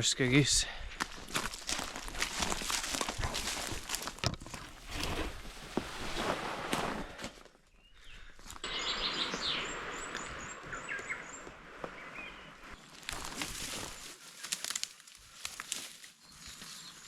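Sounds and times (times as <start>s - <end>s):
footsteps on forest track: 0.6s - 17.0s
birds singing: 7.7s - 14.6s, 16.2s - 17.0s.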